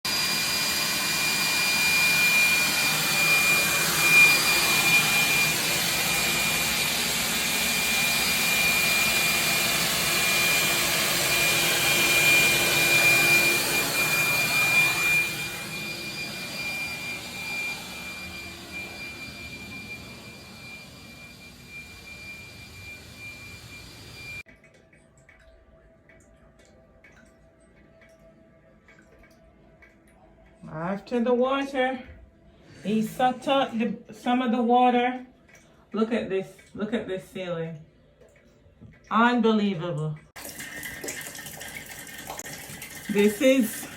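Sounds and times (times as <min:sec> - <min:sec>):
wet-dry vacuum running: 0:00.1 - 0:24.4, 0:40.4 - 0:43.9.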